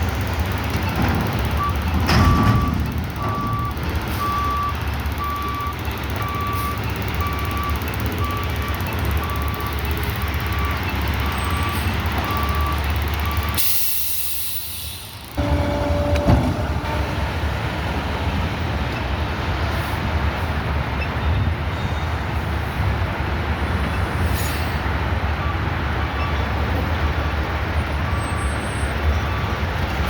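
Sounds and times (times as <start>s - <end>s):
garbage truck running: 0.0s - 30.0s
reverse alarm beeping: 1.6s - 14.6s
air brakes hissing: 13.4s - 17.0s, 24.1s - 24.9s
sharp clunk: 16.0s - 16.8s.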